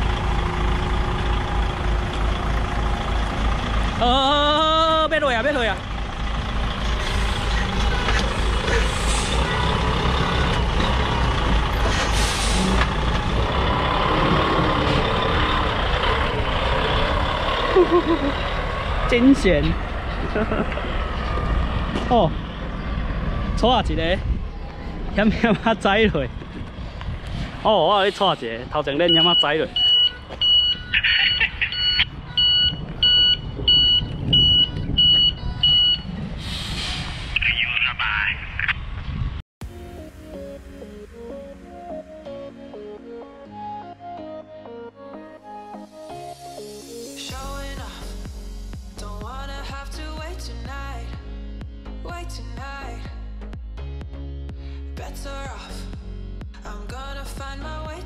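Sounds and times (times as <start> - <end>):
truck diesel engine running: 0.0 - 38.4
truck reversing alarm beeping: 29.0 - 36.3.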